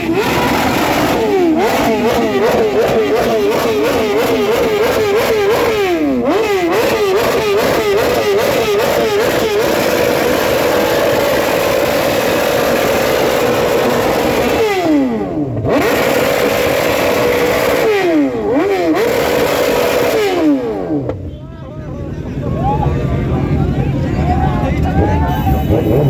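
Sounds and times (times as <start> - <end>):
motorbike engine revving: 0.0 - 21.2, 24.6 - 26.0.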